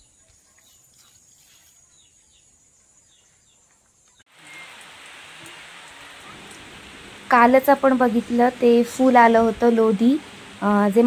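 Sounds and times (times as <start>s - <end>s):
birds chirping: 0.0s - 11.0s
rain hiss: 4.3s - 11.0s.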